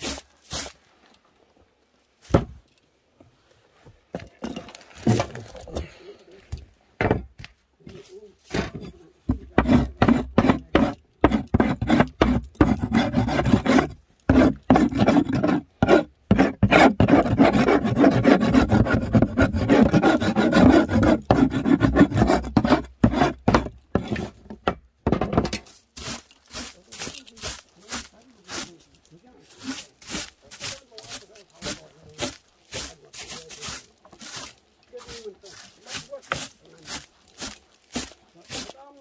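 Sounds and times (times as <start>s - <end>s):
rasping strokes on wood: 9.3s - 24.4s, 26.0s - 28.8s, 29.5s - 39.0s.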